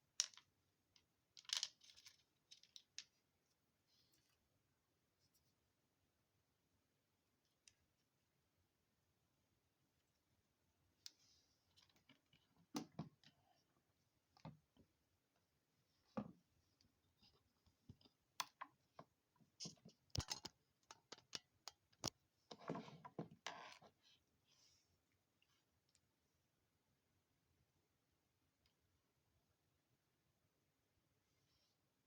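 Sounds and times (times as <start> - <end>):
clicks and taps of small parts: 17.9 - 22.2.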